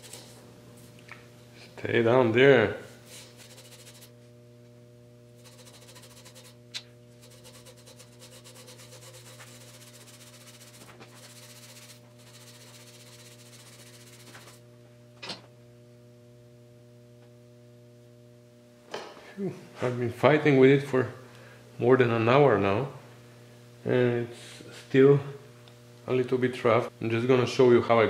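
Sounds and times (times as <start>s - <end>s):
electrical hum: 0.0s - 28.0s
rapid rubbing: 3.1s - 4.2s, 5.4s - 6.6s, 7.2s - 14.6s.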